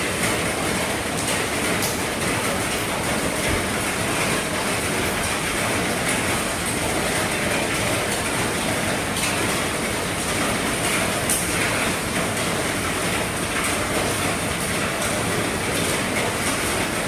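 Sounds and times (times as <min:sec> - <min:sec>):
heavy rain on a roof: 0:00.0 - 0:17.0.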